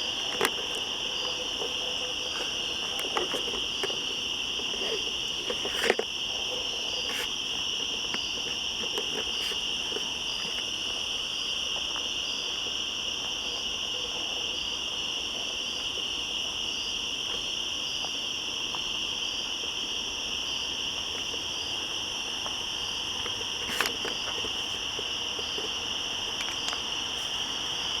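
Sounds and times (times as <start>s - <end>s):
pulsing insect call: 0.0s - 17.2s
cicadas droning: 0.0s - 28.0s.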